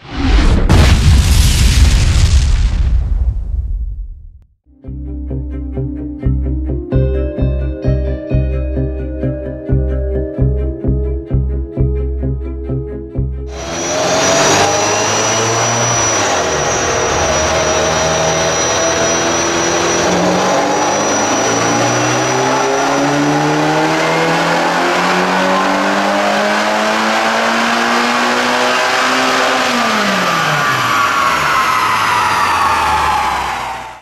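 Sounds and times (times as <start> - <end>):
car engine revving on dyno: 13.5 - 34.0.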